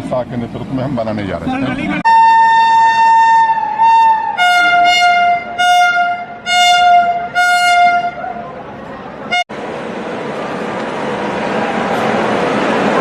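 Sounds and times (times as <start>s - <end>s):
train horn: 2.1s - 8.2s.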